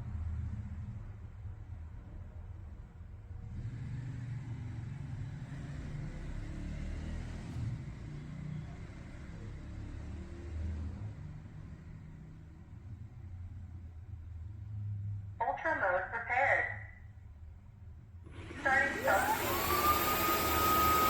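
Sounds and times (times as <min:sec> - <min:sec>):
vacuum motor hiss: 0:18.3 - 0:21.0.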